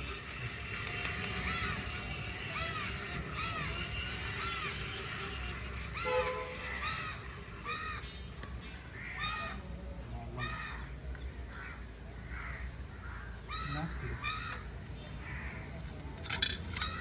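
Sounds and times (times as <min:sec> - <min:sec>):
crows cawing: 0:05.8 - 0:09.7, 0:10.3 - 0:15.9.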